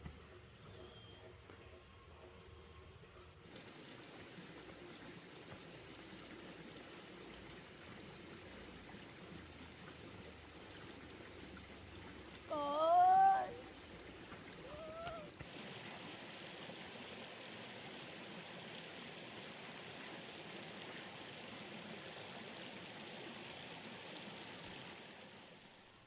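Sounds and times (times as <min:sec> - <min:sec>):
running water rushing: 0:03.4 - 0:26.0.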